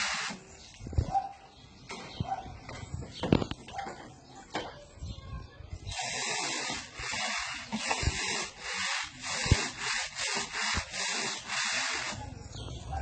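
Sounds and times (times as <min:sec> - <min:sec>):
scrubbing bird cage: 0:05.9 - 0:12.4.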